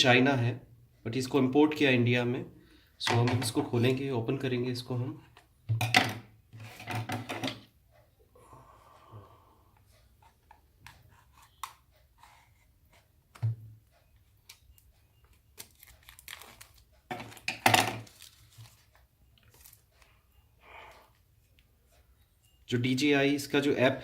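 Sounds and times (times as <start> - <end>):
packaging clicks and rustles: 15.3 - 20.1.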